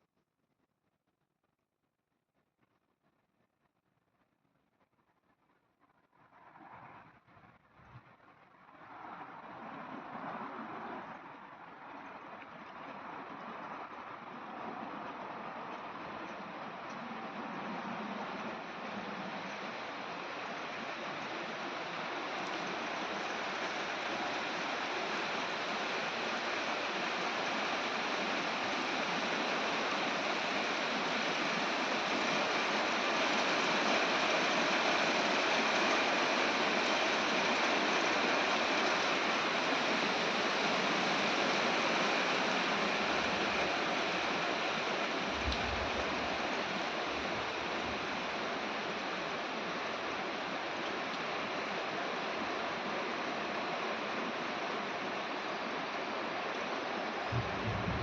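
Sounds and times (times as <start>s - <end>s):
heavy rain hissing: 12.9s - 58.0s
low rumble: 57.3s - 58.0s.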